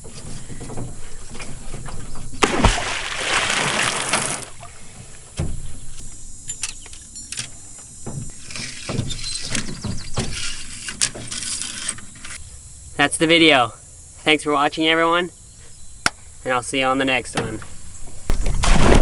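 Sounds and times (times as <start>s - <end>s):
water splashing at a boat: 2.3s - 5.7s.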